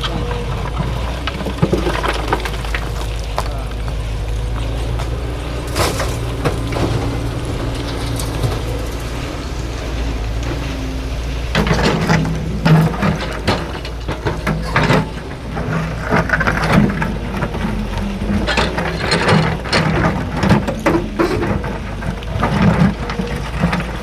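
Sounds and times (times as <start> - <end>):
heavy machinery droning: 0.0 - 24.0
knocks and clatter: 0.0 - 24.0.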